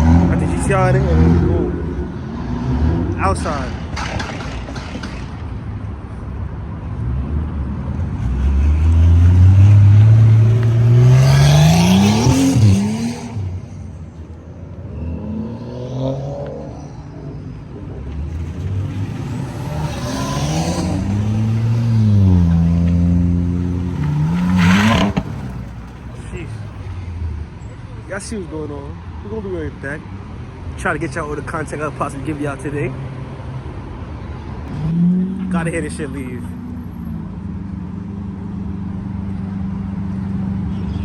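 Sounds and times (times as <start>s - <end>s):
car engine accelerating: 6.9s - 27.5s.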